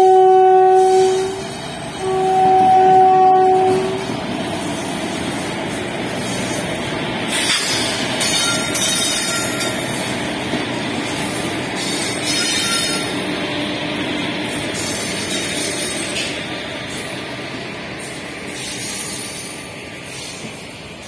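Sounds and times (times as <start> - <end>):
two-tone train horn: 0.0 - 4.1
freight train wheels clattering: 3.5 - 21.0
faint high wheel squeal: 11.2 - 13.2, 18.0 - 21.0.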